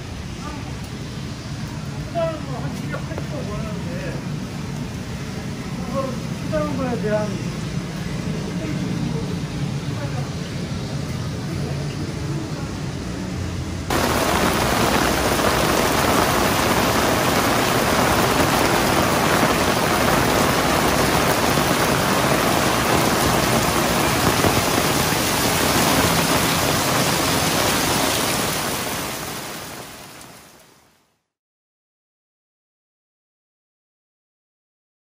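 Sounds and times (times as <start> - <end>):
heavy rain on pavement: 13.9 - 31.2.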